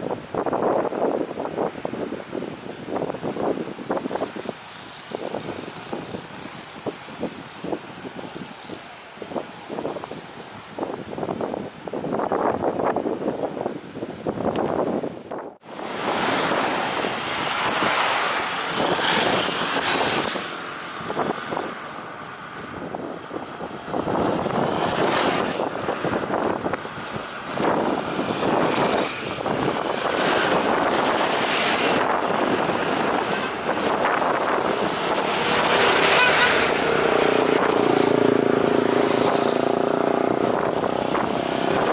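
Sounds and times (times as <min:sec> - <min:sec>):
wind buffeting microphone: 0:00.0 - 0:41.9
jet engines on approach: 0:15.6 - 0:41.9.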